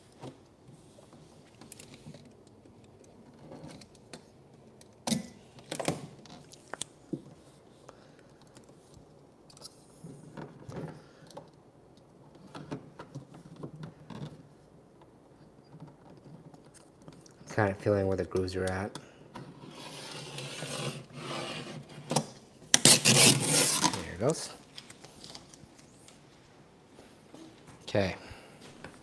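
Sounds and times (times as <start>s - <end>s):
hands smoothing vinyl wrap: 19.6s - 22.1s, 22.7s - 24.4s.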